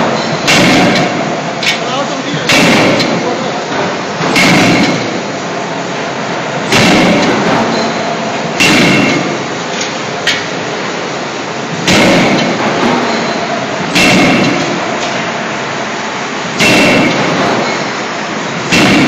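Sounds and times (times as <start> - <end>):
machine noise: 0.0 - 19.0
forging hammer blows with metallic ring: 6.7 - 9.4, 11.9 - 14.8, 16.6 - 18.0, 18.7 - 19.0.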